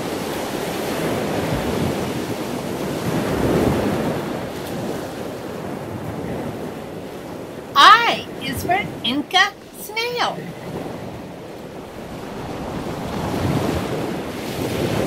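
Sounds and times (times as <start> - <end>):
ocean surf rushing: 7.0 - 15.0.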